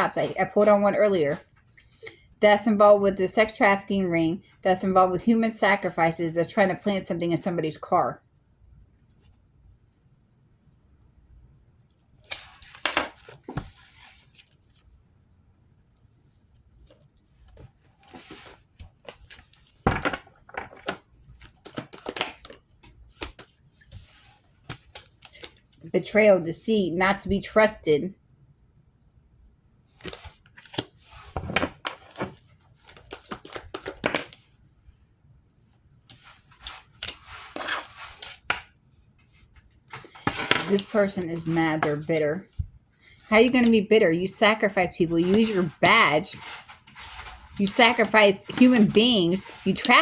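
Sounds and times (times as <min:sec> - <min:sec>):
cards being shuffled: 0:16.8 - 0:25.8, 0:30.0 - 0:34.5, 0:36.1 - 0:50.0.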